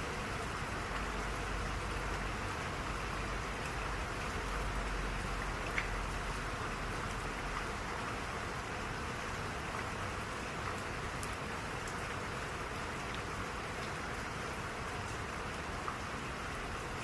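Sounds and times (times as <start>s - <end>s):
steady rain hiss: 0.0s - 17.0s
faint raindrop ticks: 2.0s - 8.4s, 9.3s - 16.1s.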